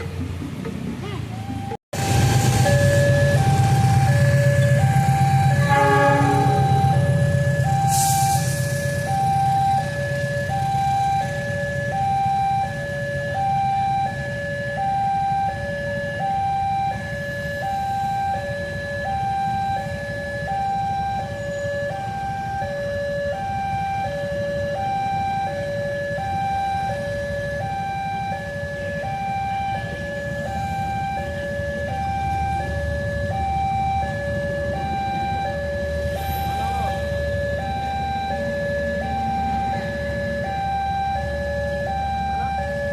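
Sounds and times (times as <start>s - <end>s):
low engine rumble: 0.0s - 12.5s
level crossing two-tone alarm: 2.4s - 42.9s.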